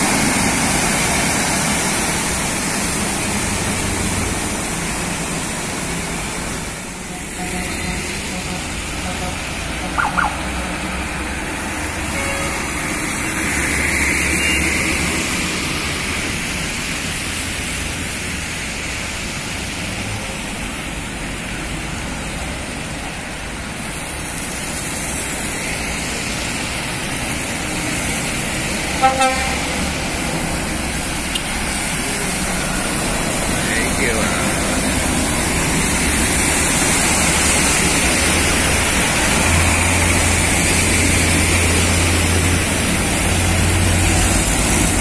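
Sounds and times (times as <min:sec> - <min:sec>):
heavy truck engine: 0:00.0 - 0:45.0
road traffic rumbling: 0:00.0 - 0:45.0
vehicle horn tooting: 0:12.1 - 0:12.8, 0:29.0 - 0:29.7.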